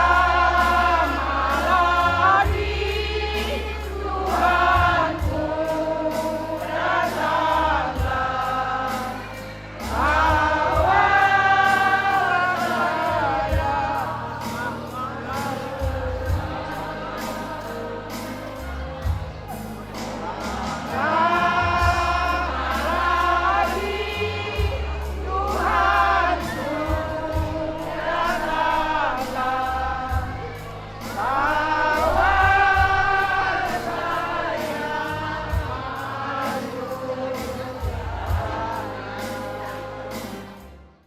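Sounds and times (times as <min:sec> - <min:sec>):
music with deep bass notes: 0:00.0 - 0:41.0
voices singing hymn-like: 0:00.0 - 0:41.0.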